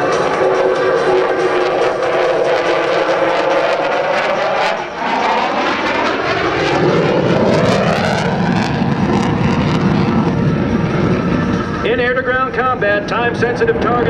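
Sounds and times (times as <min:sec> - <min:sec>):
jet engines flying past: 0:00.0 - 0:14.0.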